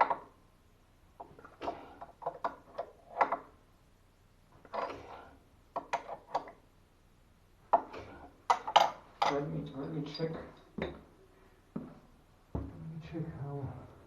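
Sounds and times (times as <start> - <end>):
tools clicking and knocking: 0.0 - 0.3, 1.2 - 3.6, 4.6 - 6.6, 7.7 - 11.1.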